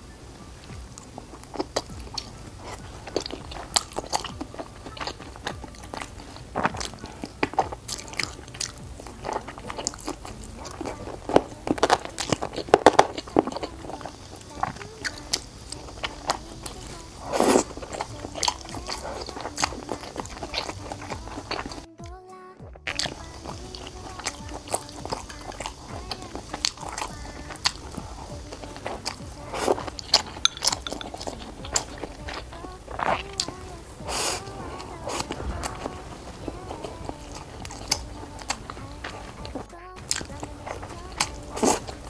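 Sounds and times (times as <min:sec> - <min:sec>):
person biting and chewing: 0:01.0 - 0:21.8, 0:22.9 - 0:42.0.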